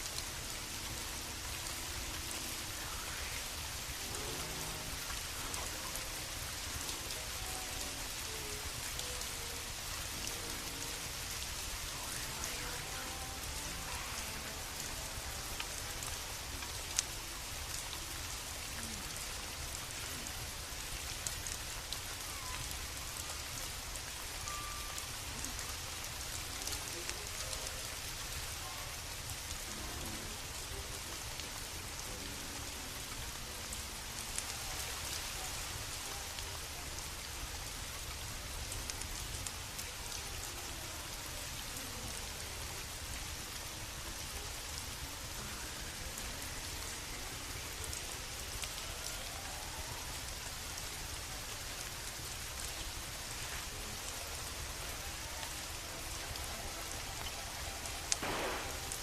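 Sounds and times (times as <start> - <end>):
steady rain falling: 0.0 - 59.0
wood fire crackling and popping: 55.4 - 59.0.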